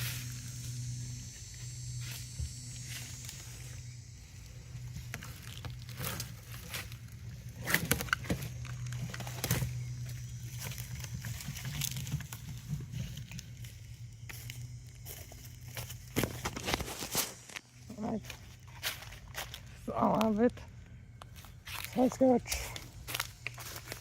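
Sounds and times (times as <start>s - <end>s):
steady low hum: 0.0s - 24.0s
rustling and scraping: 2.0s - 19.8s.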